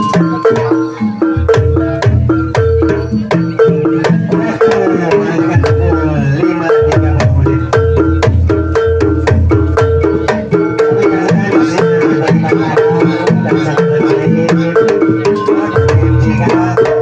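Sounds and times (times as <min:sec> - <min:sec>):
hand drum strokes: 0:00.0 - 0:17.0
mallet-struck keyed percussion: 0:00.0 - 0:17.0.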